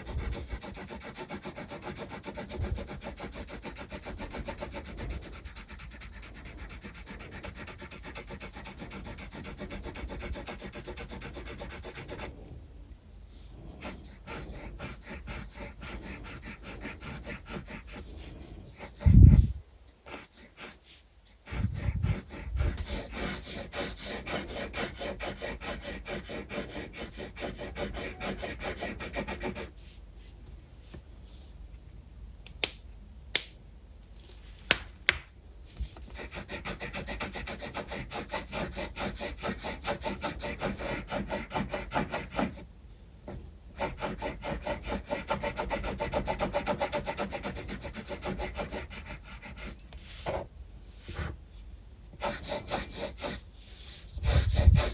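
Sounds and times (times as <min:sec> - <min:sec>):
pencil scratching on paper: 0:00.0 - 0:12.3, 0:13.3 - 0:29.8, 0:36.1 - 0:42.6, 0:43.3 - 0:51.4, 0:52.0 - 0:54.9.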